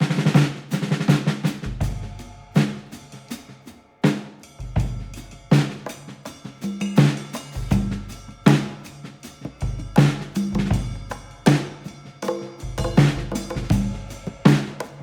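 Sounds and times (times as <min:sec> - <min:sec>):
drum beat with bass music: 0:00.0 - 0:15.0.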